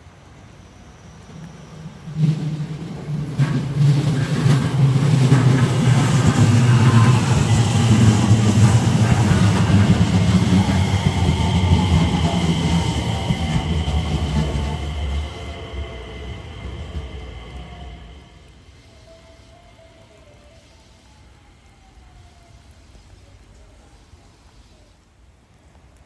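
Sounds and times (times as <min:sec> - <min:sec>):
train whine: 0:00.0 - 0:25.1
train wheels rumbling on rails: 0:00.0 - 0:25.9.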